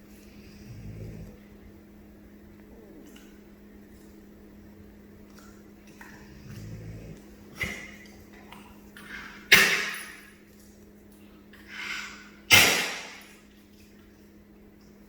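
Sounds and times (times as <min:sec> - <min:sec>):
dog snoring: 0:00.3 - 0:01.5, 0:06.1 - 0:07.4.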